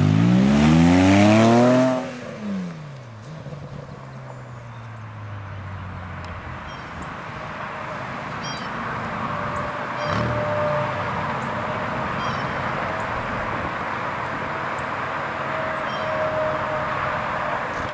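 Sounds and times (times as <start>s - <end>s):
car engine revving: 0.0s - 4.0s, 7.6s - 12.5s.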